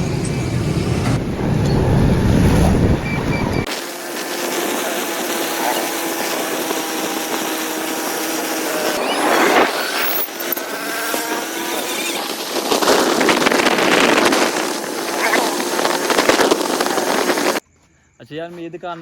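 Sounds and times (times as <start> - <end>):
power tool whining: 3.6 - 17.6.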